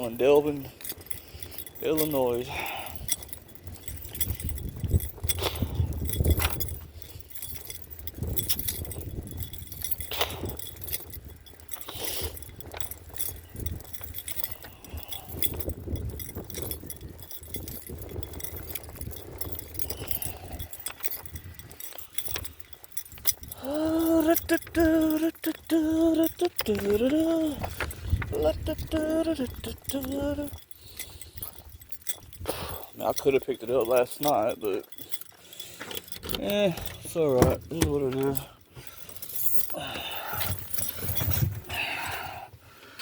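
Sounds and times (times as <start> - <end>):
metallic jingling: 0.0 - 43.0.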